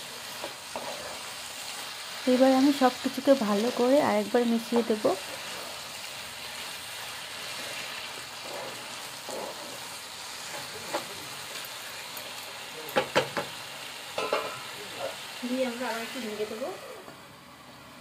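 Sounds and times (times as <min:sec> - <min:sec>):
spatula stirring and scraping: 0:00.0 - 0:12.6
carrots sizzling in a pan: 0:00.0 - 0:18.0
sharp knocks on pan: 0:13.0 - 0:13.5.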